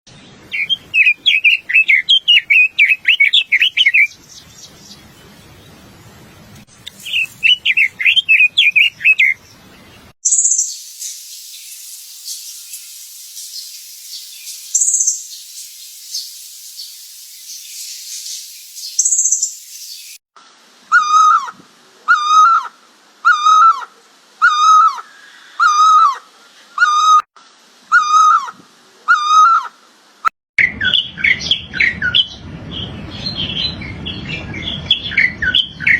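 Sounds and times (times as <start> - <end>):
steady high hiss: 6.3 - 9.6, 10.2 - 20.9, 21.5 - 23.3, 27.4 - 27.9
bird call sliding down: 6.8 - 9.2
rapid high bird chattering: 10.3 - 20.2
very high bird calls: 10.3 - 20.2.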